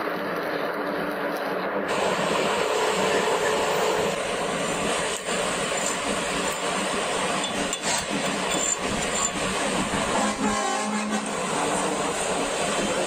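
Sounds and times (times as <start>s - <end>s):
mechanical workshop noise: 5.0s - 10.1s.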